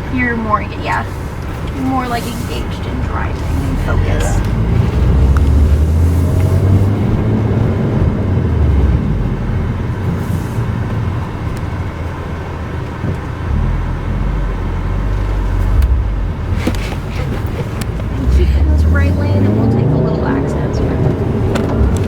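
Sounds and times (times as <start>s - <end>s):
car engine rumble: 0.0s - 22.0s
tyre road noise: 0.0s - 22.0s.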